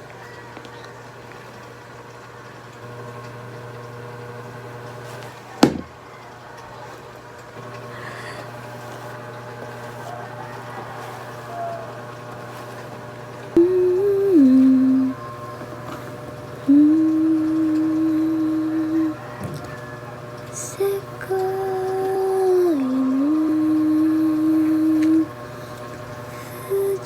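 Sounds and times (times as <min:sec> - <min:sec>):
steady mechanical hum: 0:00.0 - 0:27.0
person humming: 0:13.6 - 0:15.4, 0:16.6 - 0:19.4, 0:20.5 - 0:27.0.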